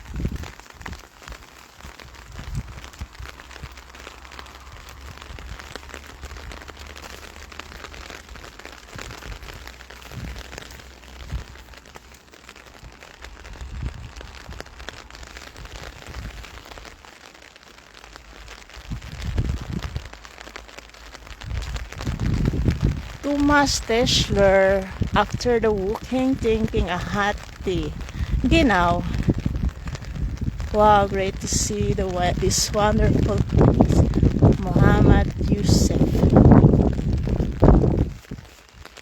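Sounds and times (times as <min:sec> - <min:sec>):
steady rain falling: 0:00.0 - 0:39.0
low rumble: 0:33.0 - 0:38.2.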